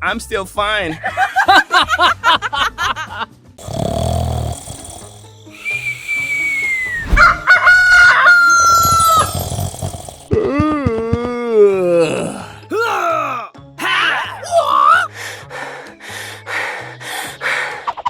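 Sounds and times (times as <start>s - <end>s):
held whistle-like tone: 5.6s - 7.6s
falling whistle-like tone: 5.6s - 7.9s.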